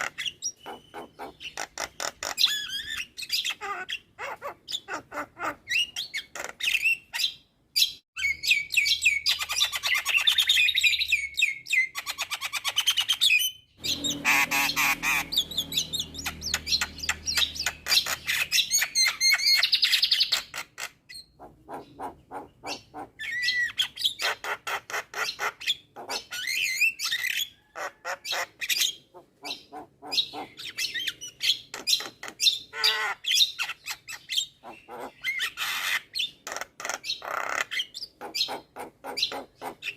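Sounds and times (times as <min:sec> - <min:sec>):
myna singing chattering chirps: 0:00.0 - 0:07.2.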